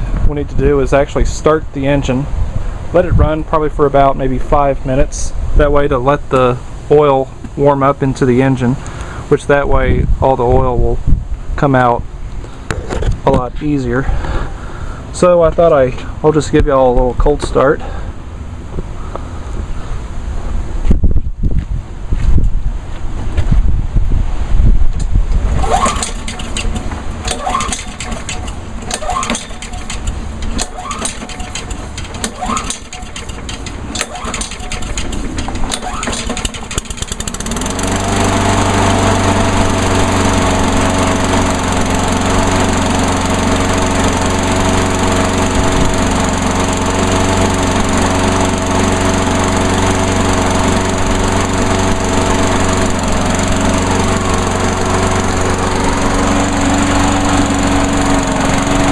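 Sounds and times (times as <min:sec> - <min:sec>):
lawnmower engine running: 0:25.4 - 0:58.9
clicking and knocking: 0:25.6 - 0:37.4.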